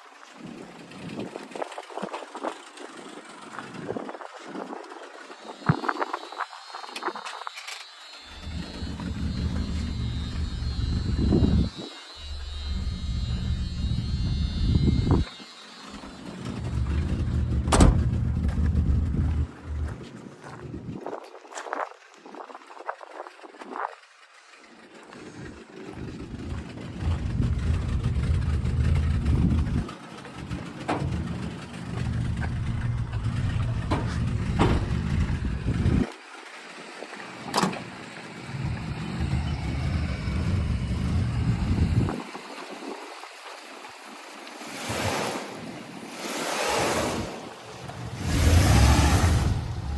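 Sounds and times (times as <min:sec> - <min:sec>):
pickup engine revving: 0:08.3 - 0:15.2, 0:15.9 - 0:20.0, 0:26.2 - 0:36.1, 0:38.3 - 0:42.2, 0:44.7 - 0:49.9.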